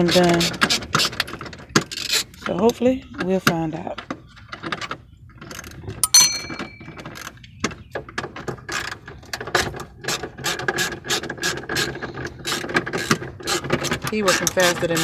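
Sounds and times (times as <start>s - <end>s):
metal clink: 6.0s - 7.1s.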